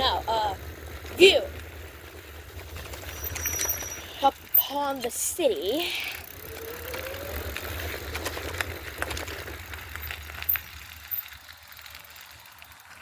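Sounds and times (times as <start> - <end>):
electric bike motor whine: 0.0 - 13.0.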